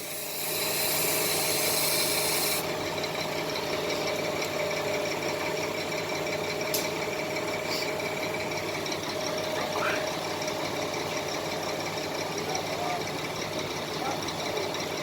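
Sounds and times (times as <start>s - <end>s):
high hiss: 0.0s - 2.6s
truck engine hum from cab: 0.0s - 15.0s.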